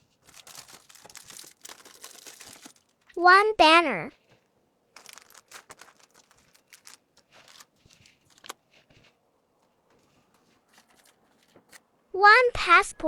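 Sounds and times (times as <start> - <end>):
packaging rustling and clicking: 0.0 - 3.2, 4.2 - 9.1, 9.9 - 11.9.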